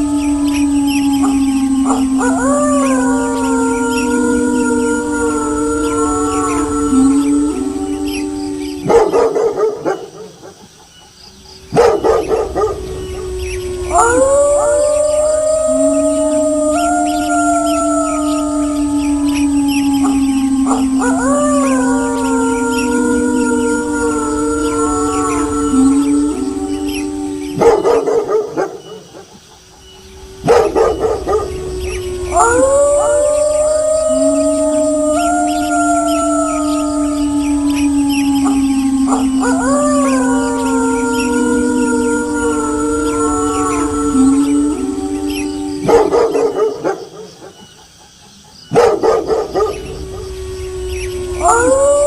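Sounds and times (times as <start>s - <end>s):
wolf howling: 0.0s - 10.7s, 11.3s - 52.0s
dogs barking: 8.8s - 10.8s, 11.6s - 13.0s, 30.4s - 31.7s, 45.8s - 47.6s, 48.7s - 49.9s.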